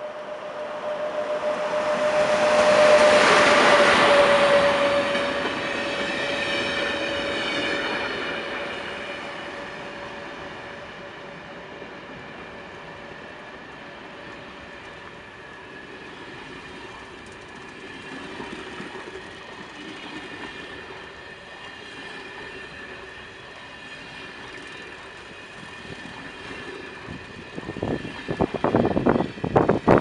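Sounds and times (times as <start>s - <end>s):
high wheel squeal: 0.0s - 10.3s
freight train rolling past: 0.0s - 30.0s
wind buffeting microphone: 25.5s - 30.0s.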